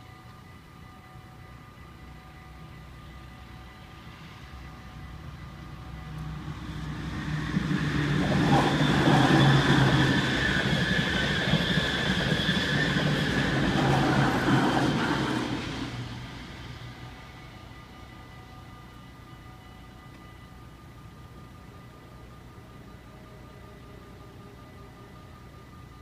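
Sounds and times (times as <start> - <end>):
train wheels rumbling and clattering: 5.2 - 17.5.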